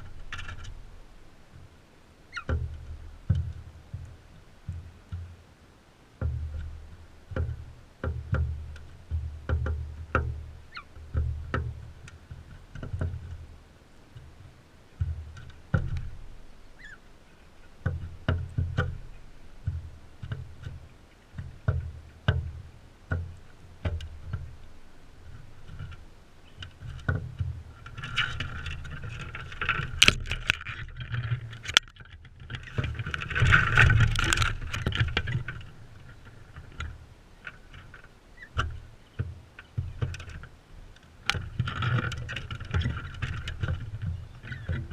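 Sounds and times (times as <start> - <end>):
scratching and rustling: 0.0 - 5.4, 6.2 - 44.9
low thumps near microphone: 2.4 - 5.4, 6.2 - 37.2
beaks tapping on feeder: 15.0 - 24.7.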